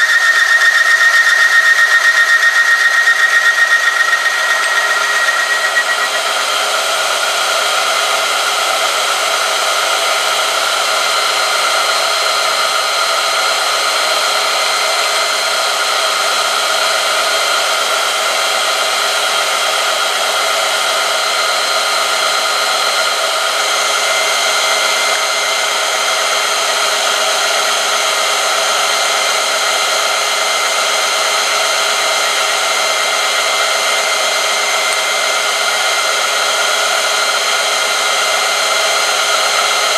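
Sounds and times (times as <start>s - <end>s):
high steady tones: 0.0s - 7.4s.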